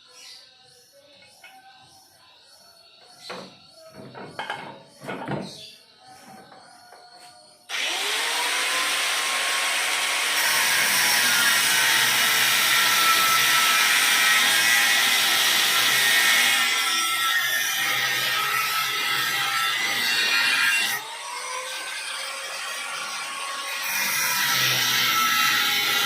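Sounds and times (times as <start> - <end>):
electric power tool whining: 7.7 - 16.8.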